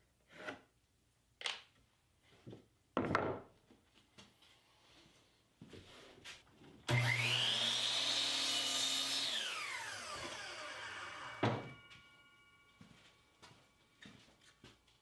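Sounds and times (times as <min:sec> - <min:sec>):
power saw motor whine: 0:06.9 - 0:13.4
short ringing tone: 0:11.2 - 0:13.9.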